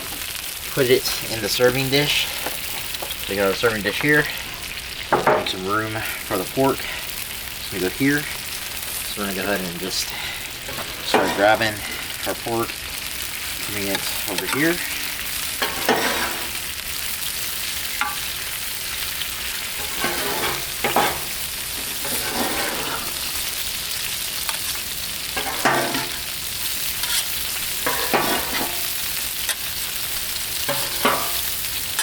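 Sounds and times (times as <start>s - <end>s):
meat sizzling on griddle: 0.0s - 32.0s
utensil scraping griddle: 7.8s - 12.8s, 13.4s - 16.7s, 17.9s - 29.9s, 30.5s - 32.0s.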